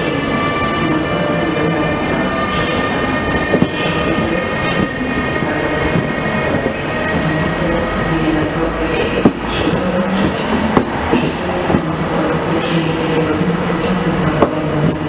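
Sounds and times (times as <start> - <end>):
high wheel squeal: 0.0 - 10.0
train wheels rumbling on rail: 0.0 - 15.0.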